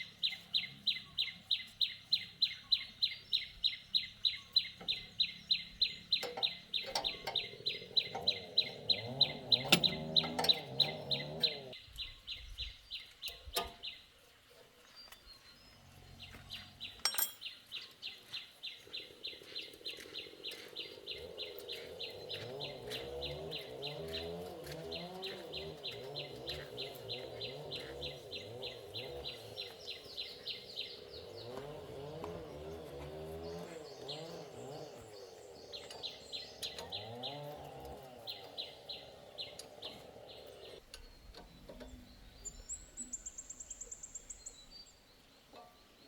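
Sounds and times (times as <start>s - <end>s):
hens clucking: 4.6s - 11.8s, 18.9s - 40.8s.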